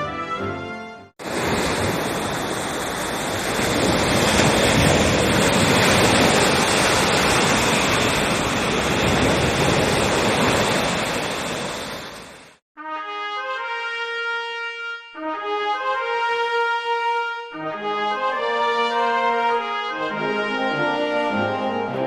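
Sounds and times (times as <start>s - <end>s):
surf waves rushing: 1.2s - 12.6s.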